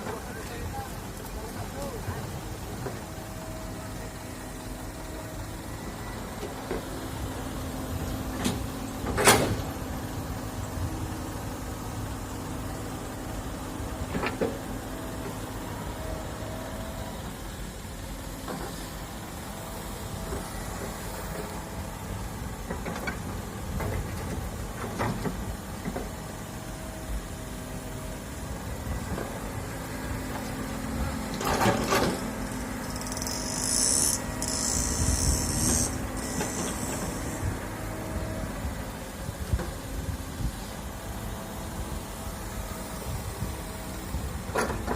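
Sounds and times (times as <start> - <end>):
excavator diesel engine: 0.0 - 44.9
hydraulic whine: 2.6 - 44.9.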